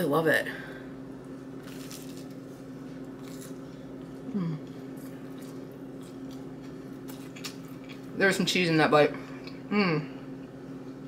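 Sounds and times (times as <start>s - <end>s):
biting and chewing sandwich: 1.6s - 8.1s.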